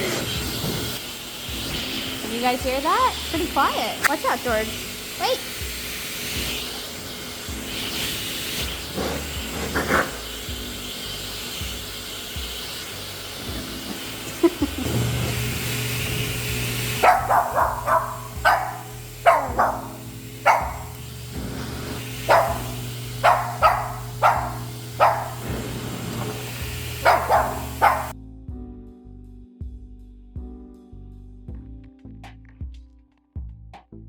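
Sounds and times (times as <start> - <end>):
hair dryer blowing: 0.0 - 28.2
dog barking: 9.7 - 10.2, 17.0 - 21.0, 22.2 - 25.7, 27.0 - 28.1.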